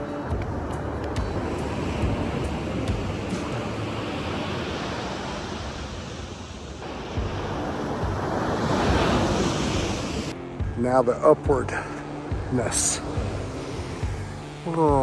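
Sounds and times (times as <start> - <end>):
surf washing on beach: 0.0 - 10.3
wind on microphone: 0.0 - 10.3.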